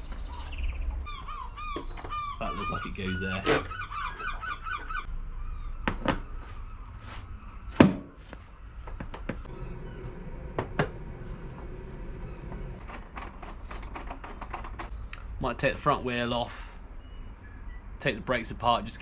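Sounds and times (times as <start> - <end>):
tools and parts clicking and knocking: 12.5 - 15.0.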